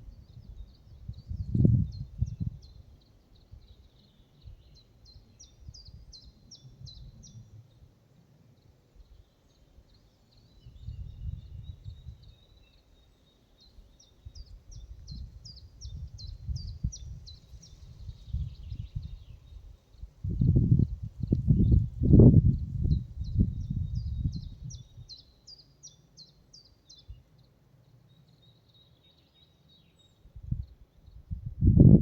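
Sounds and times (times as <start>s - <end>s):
wind rumbling on microphone: 0.0s - 7.8s, 10.6s - 12.5s, 13.9s - 25.2s, 30.2s - 32.0s
small songbird singing: 0.0s - 32.0s.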